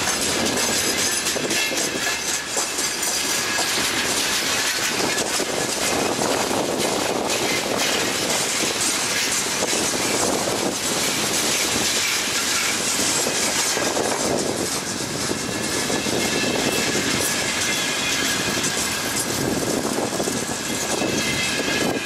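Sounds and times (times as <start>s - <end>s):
train wheels rumbling and rattling: 0.0s - 22.0s
high wheel squeal: 15.5s - 19.1s, 20.7s - 22.0s.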